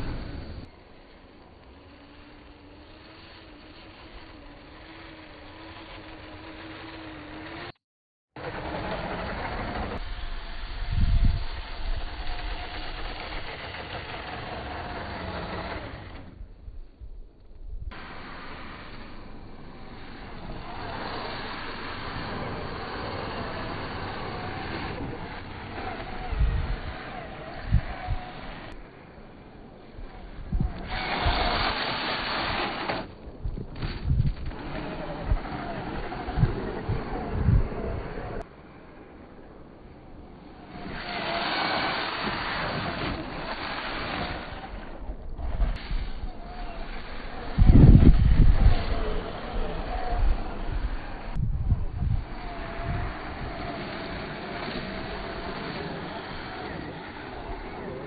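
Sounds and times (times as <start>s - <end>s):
electric motor whine: 0.0s - 7.8s, 8.4s - 16.6s, 17.9s - 39.1s, 39.9s - 58.0s
rushing noise: 17.9s - 58.0s.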